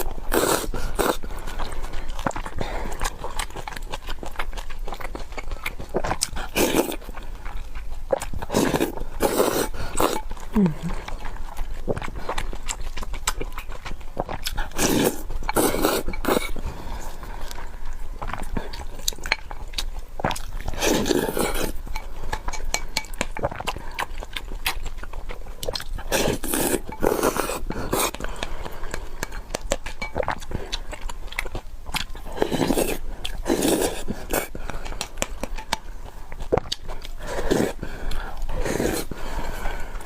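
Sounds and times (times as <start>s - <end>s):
chewing: 0.0s - 40.0s.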